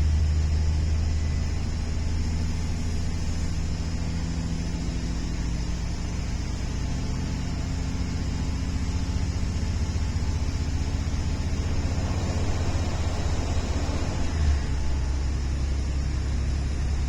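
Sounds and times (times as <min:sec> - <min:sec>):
train rumble inside carriage: 0:09.1 - 0:17.0.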